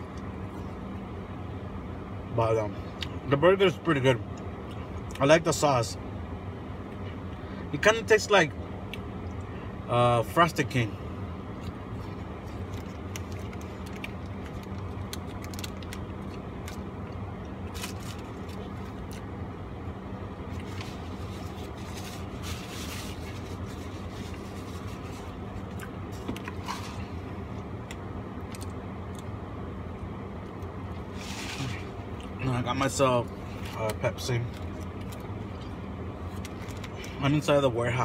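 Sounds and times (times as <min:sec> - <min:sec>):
low hum in car cabin: 0:00.0 - 0:38.0
paper wrapper crinkling: 0:12.5 - 0:16.8, 0:17.7 - 0:19.2
person chewing: 0:23.6 - 0:29.3.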